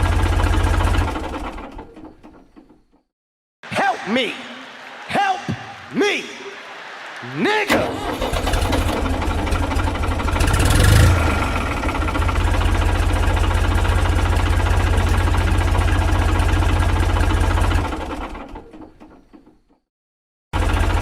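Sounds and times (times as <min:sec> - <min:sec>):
tractor engine running: 0:00.0 - 0:03.0, 0:07.7 - 0:19.7, 0:20.6 - 0:21.0.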